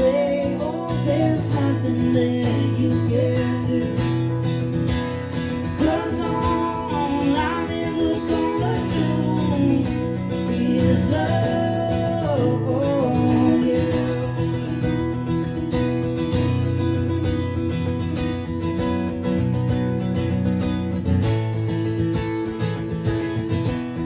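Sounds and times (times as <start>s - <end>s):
man singing long held notes: 0.0s - 4.0s, 5.8s - 14.6s
strummed acoustic guitar: 0.0s - 24.0s.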